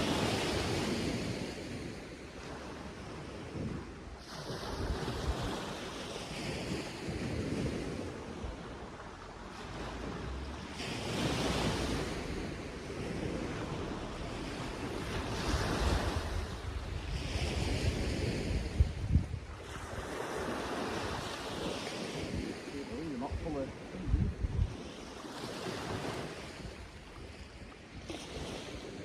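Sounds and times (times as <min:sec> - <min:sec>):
sea waves washing onto beach: 0:00.0 - 0:29.0
wind buffeting microphone: 0:00.0 - 0:29.0.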